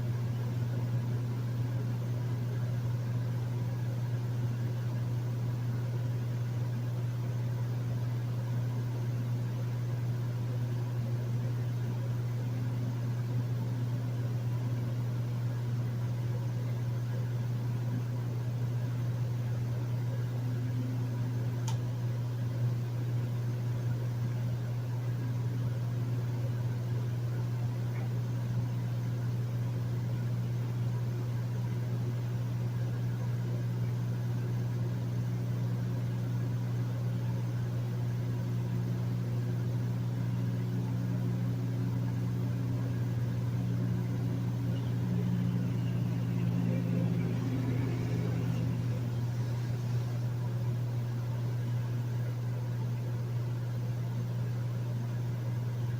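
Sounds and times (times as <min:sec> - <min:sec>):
air conditioner humming: 0:00.0 - 0:55.9
faint tick: 0:21.6 - 0:21.8.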